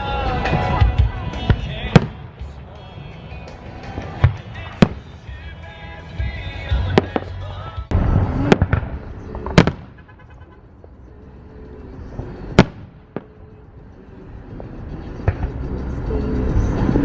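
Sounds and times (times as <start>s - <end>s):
fireworks crackle: 0.0s - 11.0s
fireworks bangs: 0.4s - 5.5s, 6.7s - 10.6s, 12.2s - 13.4s.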